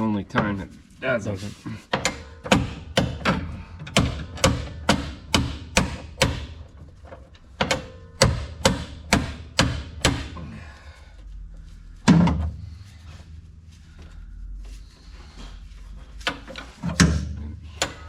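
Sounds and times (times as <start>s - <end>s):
hammer striking impact driver: 2.0s - 6.7s, 7.6s - 10.4s.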